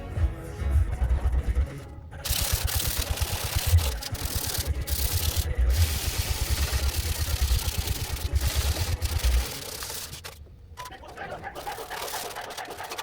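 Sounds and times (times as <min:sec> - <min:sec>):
background music with beat: 0:00.0 - 0:06.3
hand sanding sheet metal: 0:02.3 - 0:10.4, 0:11.4 - 0:13.0.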